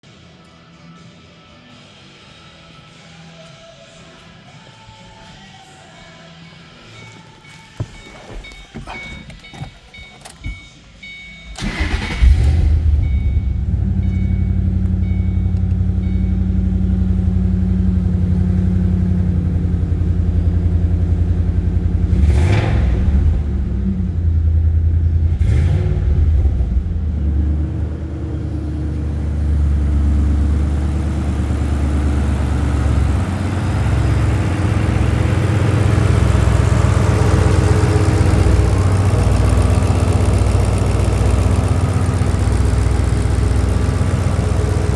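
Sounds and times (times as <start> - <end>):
car engine starting and idling: 6.8 - 44.9
faint beep: 6.9 - 11.6, 12.9 - 16.7.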